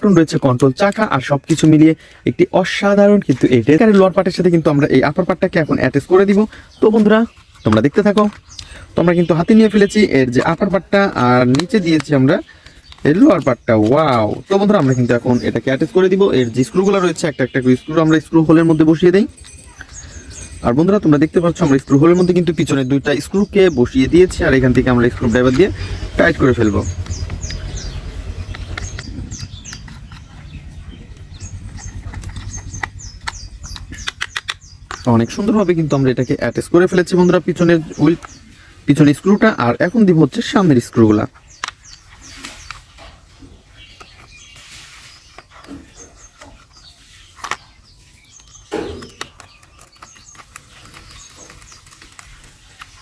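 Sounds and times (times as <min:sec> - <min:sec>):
birds chirping: 0:00.0 - 0:53.0
steady low hum: 0:08.3 - 0:39.0.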